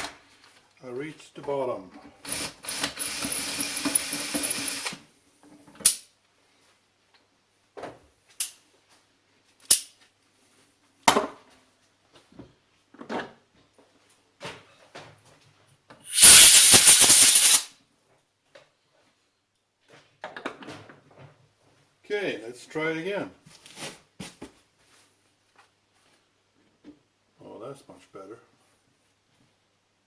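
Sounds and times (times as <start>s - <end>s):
loud rushing burst: 16.1s - 17.7s.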